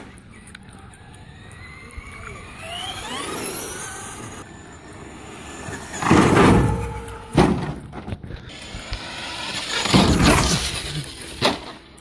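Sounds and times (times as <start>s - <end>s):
electric motor whining: 0.8s - 6.0s
loud rough rush: 2.4s - 11.8s
truck landing knock: 6.0s - 8.2s.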